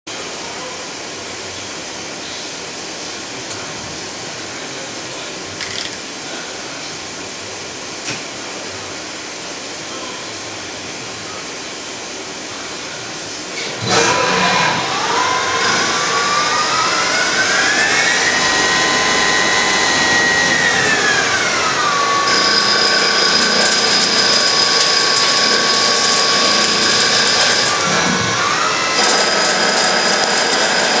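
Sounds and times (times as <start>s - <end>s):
lathe whirring hiss: 12.6s - 31.0s.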